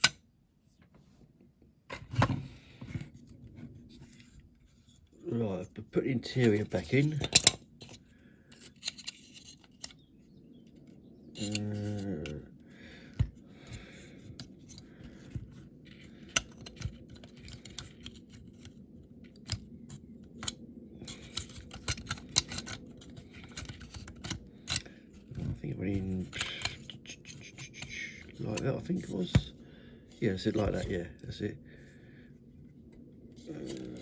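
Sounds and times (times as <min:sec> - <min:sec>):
clicks and taps of toy car parts: 0:16.3 - 0:18.8, 0:20.4 - 0:24.9.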